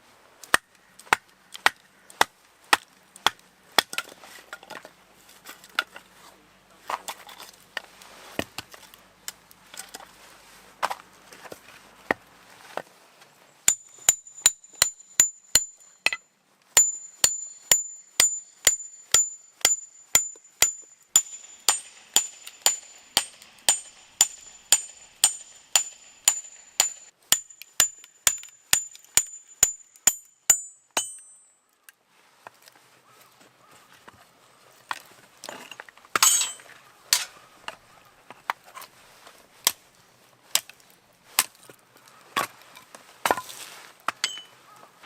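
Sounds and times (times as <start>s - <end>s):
hammer striking metal stake: 13.6s - 16.2s, 16.8s - 31.6s, 36.2s - 37.3s, 44.1s - 44.6s.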